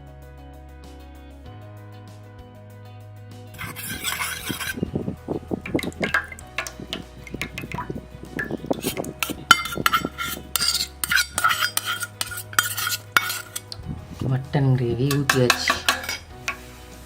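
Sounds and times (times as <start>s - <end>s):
metal spoon scraping metal vessel: 3.6s - 17.0s.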